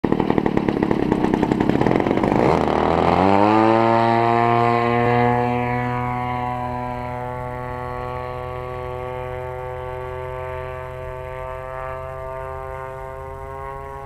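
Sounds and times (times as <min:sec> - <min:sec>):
model plane engine running: 0:00.0 - 0:14.0
steady held tone with overtones: 0:00.0 - 0:14.0.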